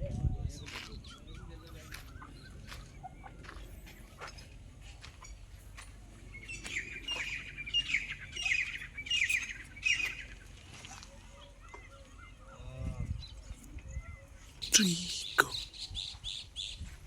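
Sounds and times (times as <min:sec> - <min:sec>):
bird harsh chirps: 0:14.6 - 0:16.3.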